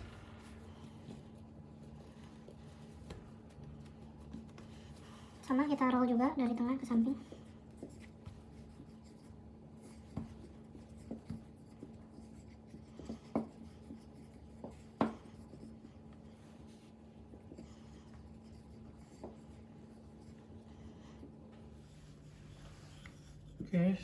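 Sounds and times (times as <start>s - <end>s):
rolling pin rubbing dough: 0.0s - 24.0s
steady low hum: 0.0s - 24.0s
light knocks of rolling pin: 9.8s - 15.9s.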